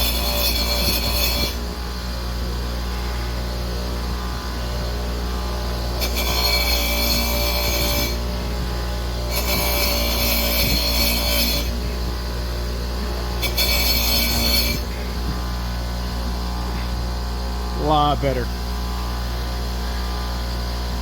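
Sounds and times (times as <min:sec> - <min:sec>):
wire wheel scratching rust: 0:00.0 - 0:02.1, 0:04.6 - 0:17.4.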